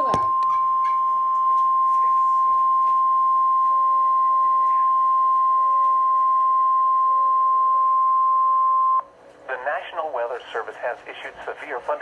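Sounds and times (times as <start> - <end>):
steady pure alarm tone: 0.0 - 9.2.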